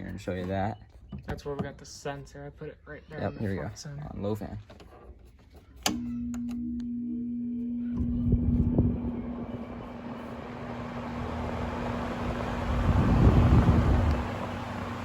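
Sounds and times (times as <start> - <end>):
air conditioner running: 5.9 - 15.0
low rumbling: 6.9 - 15.0.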